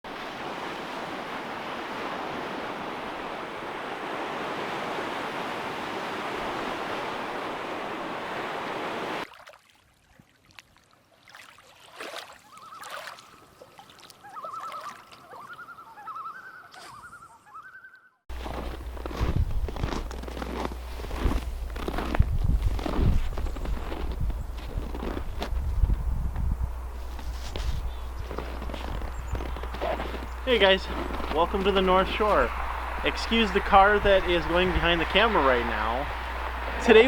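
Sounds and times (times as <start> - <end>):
waves washing onto shore: 0.1 - 9.3, 28.7 - 37.0
short wavering calls: 12.4 - 18.2.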